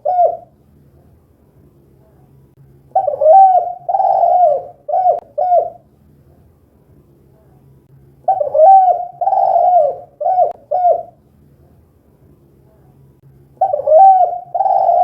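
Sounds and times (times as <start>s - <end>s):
dove cooing: 0.0s - 0.6s, 2.9s - 5.8s, 8.3s - 11.2s, 13.6s - 15.0s.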